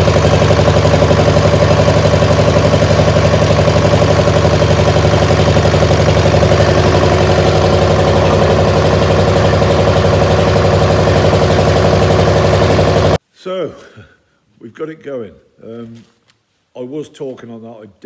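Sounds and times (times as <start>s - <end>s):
diesel engine idling: 0.0s - 13.2s.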